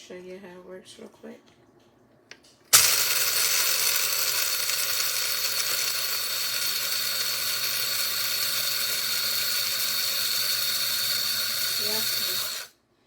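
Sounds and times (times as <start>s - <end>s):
coffee grinder grinding beans: 2.7s - 12.8s.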